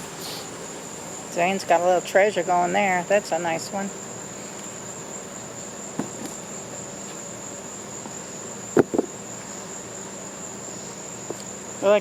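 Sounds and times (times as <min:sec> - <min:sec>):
high-pitched insect chorus: 0:00.0 - 0:12.0
sharp knocks: 0:06.0 - 0:06.4, 0:08.8 - 0:09.1.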